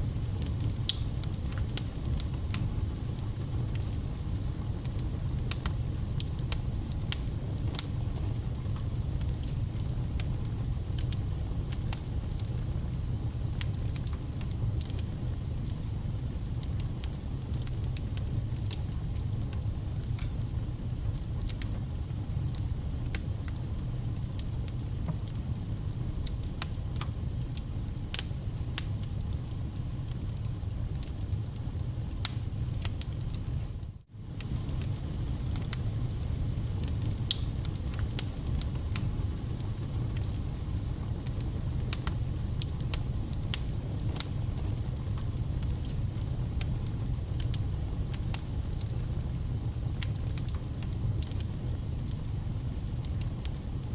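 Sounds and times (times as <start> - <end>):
campfire flame rumble: 0.0 - 53.9
crackles and pops from logs: 0.4 - 2.6, 32.0 - 33.4, 36.8 - 39.1.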